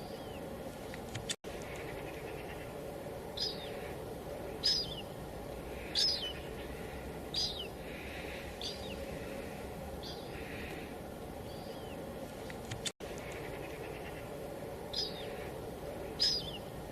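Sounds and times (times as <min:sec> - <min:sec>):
bird calling: 0:00.0 - 0:16.9
light rain hiss: 0:00.0 - 0:16.9.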